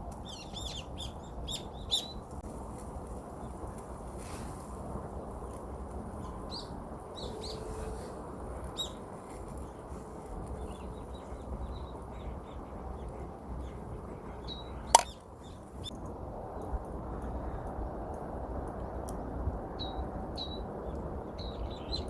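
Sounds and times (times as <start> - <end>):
outdoor background noise: 0.0 - 22.0
small birds chirping: 0.2 - 2.4, 8.7 - 15.9
sharp snap: 15.0 - 15.2.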